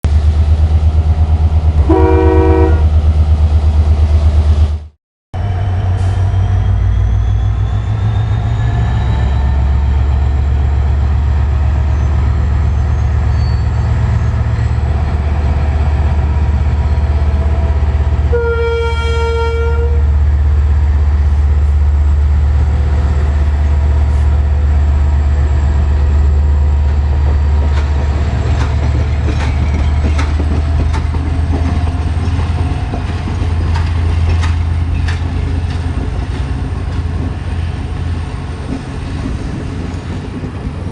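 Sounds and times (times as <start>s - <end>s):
diesel locomotive engine rumble: 0.0s - 40.9s
locomotive horn: 1.8s - 3.0s, 17.4s - 20.2s
wheels clicking over rail joints: 27.6s - 37.4s.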